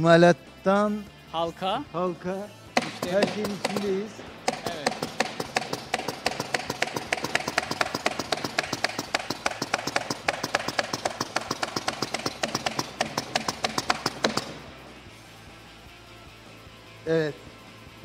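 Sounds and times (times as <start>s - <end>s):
rapid even knocking: 2.8s - 14.8s.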